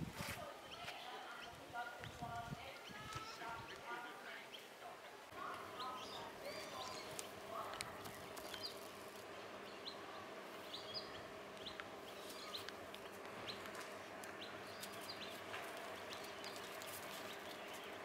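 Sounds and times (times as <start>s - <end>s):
small birds chirping: 0.4s - 18.0s
faint steady hum: 0.5s - 18.0s.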